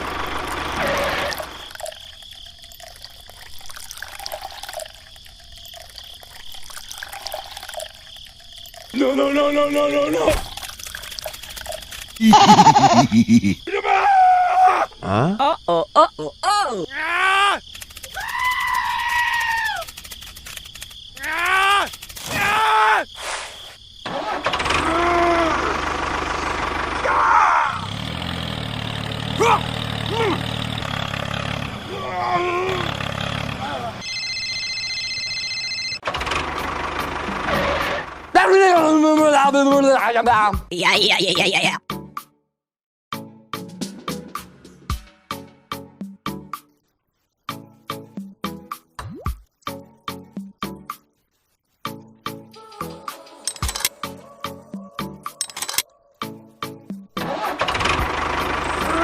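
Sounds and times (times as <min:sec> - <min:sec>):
small engine running: 0:00.0 - 0:01.7, 0:24.1 - 0:35.3, 0:36.0 - 0:38.4, 0:57.2 - 0:59.0
water trickling and splashing: 0:00.8 - 0:12.2.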